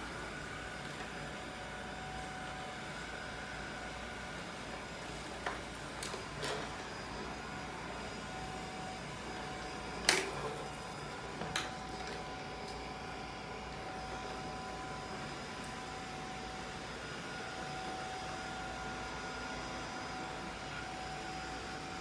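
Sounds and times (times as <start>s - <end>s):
robot vacuum cleaner whining: 0.0s - 22.0s.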